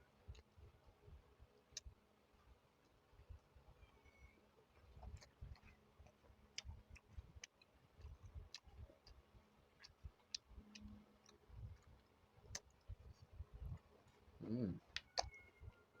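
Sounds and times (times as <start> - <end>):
person chewing: 4.8 - 15.5.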